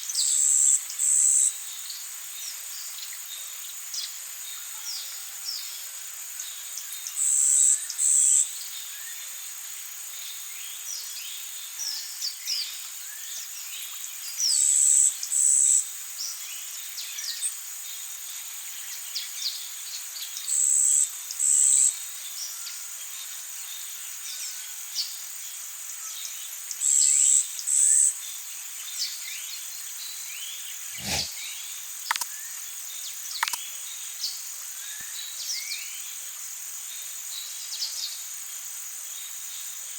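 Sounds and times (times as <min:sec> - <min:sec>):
high insect drone: 0:16.8 - 0:39.9.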